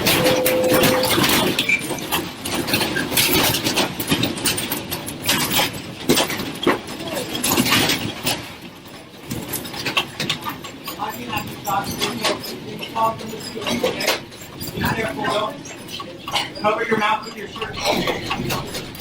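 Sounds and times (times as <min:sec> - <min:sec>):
short steady tone: 0:00.0 - 0:01.4
rattling and knocking clicks: 0:17.6 - 0:19.0.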